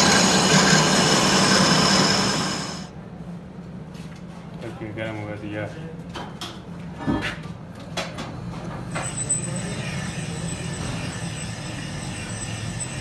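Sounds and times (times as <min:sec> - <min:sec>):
high whine: 0:00.0 - 0:02.9
hiss: 0:00.0 - 0:02.9
workshop machinery humming: 0:00.0 - 0:02.9.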